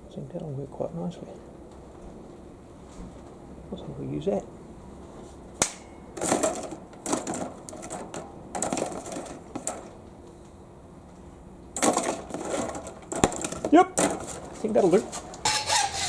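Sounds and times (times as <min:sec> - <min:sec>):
metal parts clicking and clattering: 0:06.2 - 0:10.0, 0:11.8 - 0:16.0.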